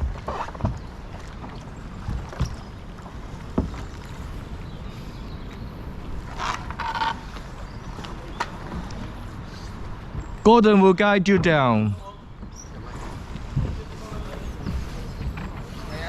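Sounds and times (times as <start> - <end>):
hollow knocks of canoe: 0.0 - 4.0, 11.3 - 16.0
canoe scraping: 0.0 - 16.0.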